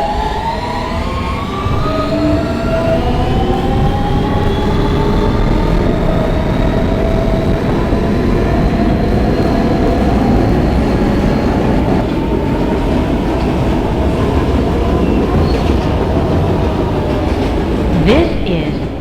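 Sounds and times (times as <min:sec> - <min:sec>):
subway wheels rumbling on rail: 0:00.0 - 0:17.9
electric motor whine: 0:04.4 - 0:12.0.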